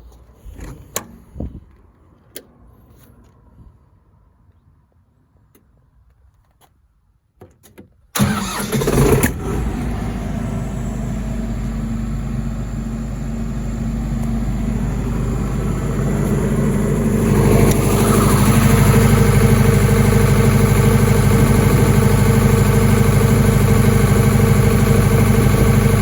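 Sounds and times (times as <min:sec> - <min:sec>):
diesel generator engine running: 0:08.2 - 0:26.0.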